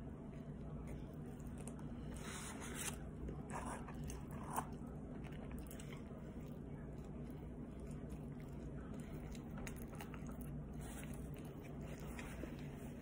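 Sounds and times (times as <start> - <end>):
chewing with wet smacks: 3.2 - 13.0.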